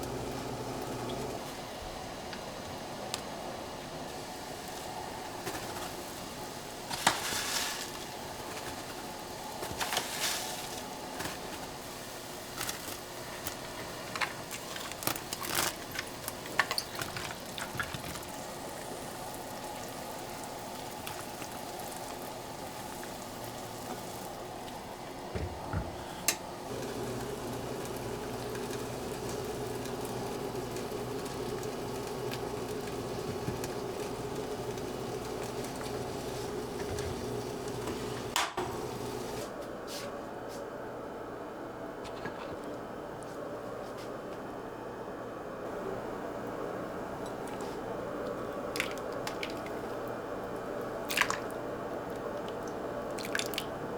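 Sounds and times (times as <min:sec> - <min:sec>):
liquid bubbling in a pot: 0:26.7 - 0:39.4, 0:47.2 - 0:53.9.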